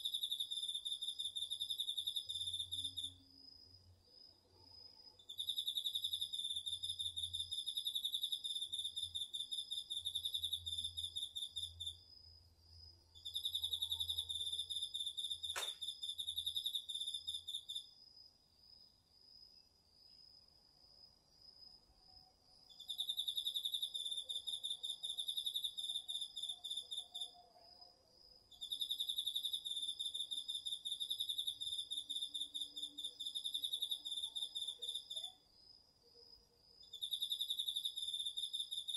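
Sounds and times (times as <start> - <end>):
steady high insect trill: 0.0 - 19.6, 21.0 - 38.9
sharp click: 15.5 - 15.8.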